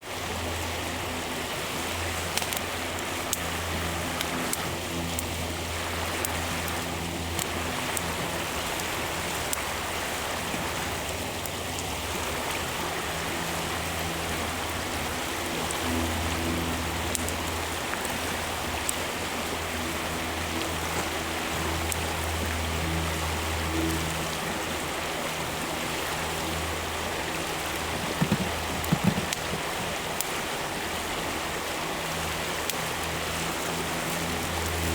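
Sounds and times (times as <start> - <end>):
wood fire crackling and popping: 2.3 - 9.6, 27.6 - 30.4.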